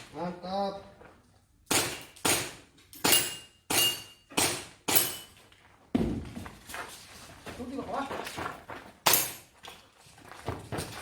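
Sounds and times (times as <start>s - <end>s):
airsoft pistol shots: 1.7s - 5.1s.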